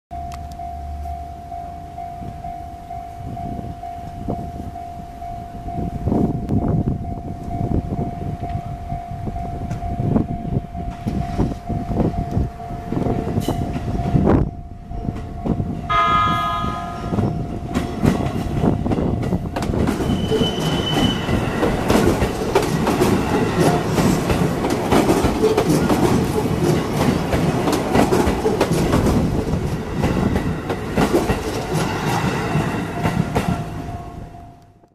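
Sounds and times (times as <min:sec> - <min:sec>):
steady tone: 0:00.1 - 0:19.5
train rumble: 0:00.2 - 0:34.9
train horn blast: 0:15.9 - 0:17.4
wheels clacking over rail joints: 0:17.5 - 0:34.0.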